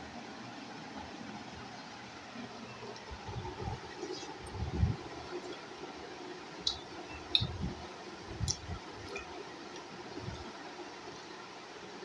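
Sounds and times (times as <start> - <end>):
mouth clicks and wet smacks: 6.6 - 7.7, 8.4 - 10.5.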